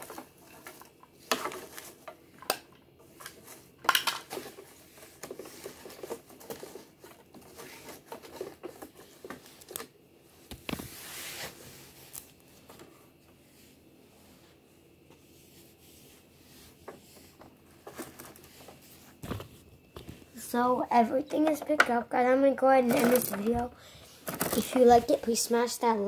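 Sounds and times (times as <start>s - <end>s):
toys clicking and tapping: 22.9s - 23.7s.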